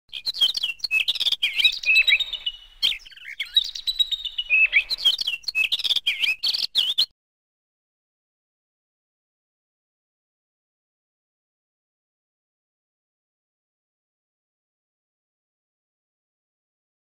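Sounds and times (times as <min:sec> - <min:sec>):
birds chirping and twittering: 0:00.1 - 0:07.1.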